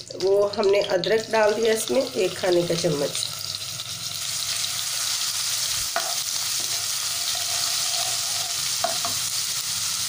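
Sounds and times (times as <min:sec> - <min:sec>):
ginger sizzling in hot oil: 0:00.0 - 0:10.0
spatula knocking against pan: 0:08.8 - 0:09.2.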